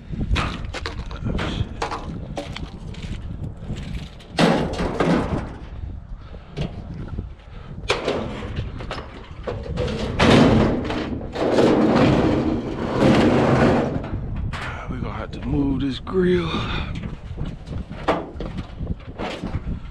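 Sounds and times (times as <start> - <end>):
scrap metal thuds and clattering: 0.4 - 5.9, 7.8 - 14.8, 16.9 - 19.9.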